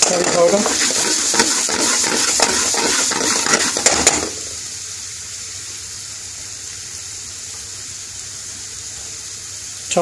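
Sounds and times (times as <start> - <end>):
metal spoon scraping pan: 0.0 - 4.3
onions frying in oil: 0.0 - 10.0.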